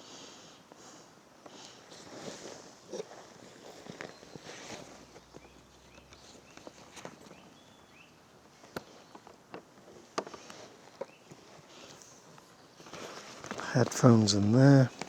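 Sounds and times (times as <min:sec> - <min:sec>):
recording gear being handled: 0:01.4 - 0:07.7, 0:08.4 - 0:15.0
faint bird chirps: 0:03.9 - 0:08.3.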